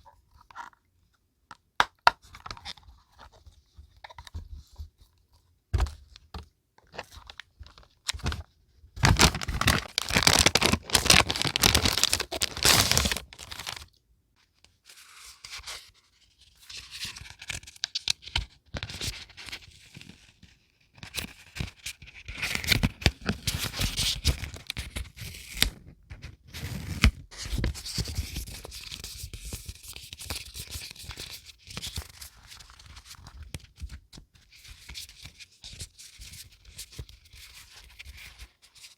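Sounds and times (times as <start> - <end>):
paper crinkling and rustling: 6.9 - 13.9, 14.9 - 20.3
packaging tearing: 9.0 - 13.9.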